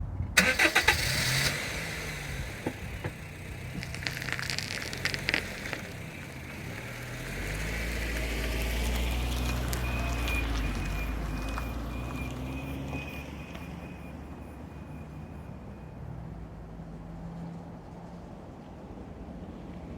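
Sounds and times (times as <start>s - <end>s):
car rolling rumble: 0.1s - 19.9s
pulsing brake squeal: 2.3s - 16.6s
crackling clicks and rattles: 2.6s - 7.0s.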